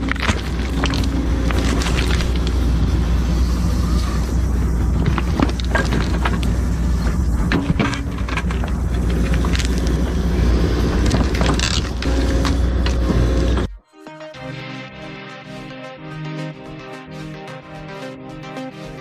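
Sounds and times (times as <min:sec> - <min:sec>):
sharp knocks and cracks of roots: 0:00.0 - 0:02.6
excavator diesel engine running: 0:00.0 - 0:13.8.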